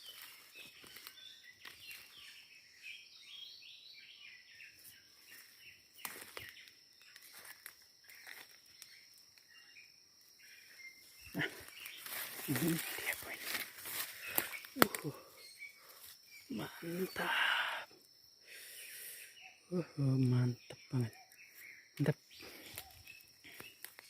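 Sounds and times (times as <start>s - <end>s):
rustles in vegetation: 0.0s - 2.4s, 4.7s - 17.3s, 21.2s - 24.0s
high insect drone: 0.0s - 24.0s
small birds chirping: 0.0s - 24.0s.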